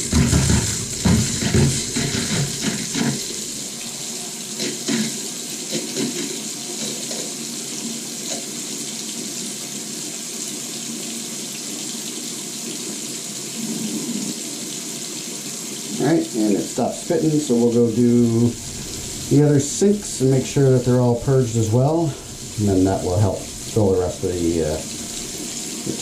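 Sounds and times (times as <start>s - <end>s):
faucet spitting and sputtering: 0.0s - 7.4s.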